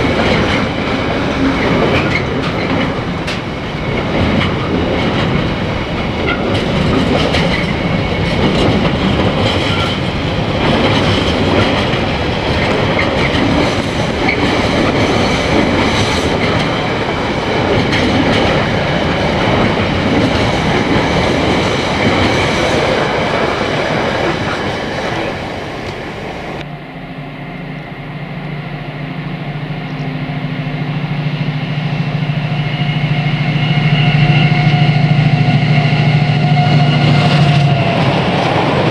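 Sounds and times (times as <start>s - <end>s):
train wheels clattering over rail joints: 0.0s - 26.6s
diesel locomotive engine hum: 0.0s - 38.9s.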